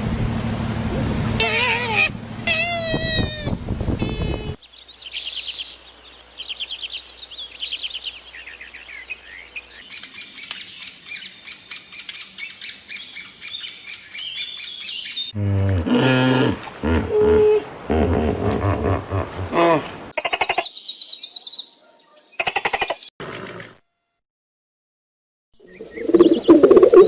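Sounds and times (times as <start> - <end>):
loud bleating calls: 1.4 - 4.6
small birds chirping: 1.4 - 15.4, 20.3 - 23.1, 25.6 - 27.0.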